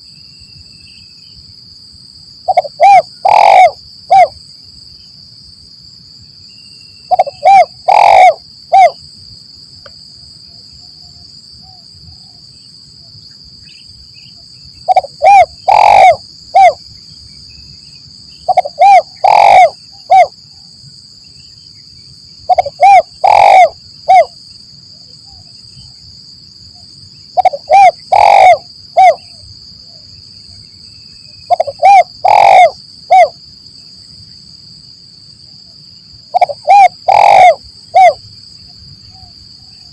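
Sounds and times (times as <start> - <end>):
dove cooing: 2.5 - 4.4, 7.1 - 9.0, 14.9 - 16.8, 18.5 - 20.3, 22.5 - 24.4, 27.4 - 29.4, 31.5 - 33.4, 36.3 - 38.2.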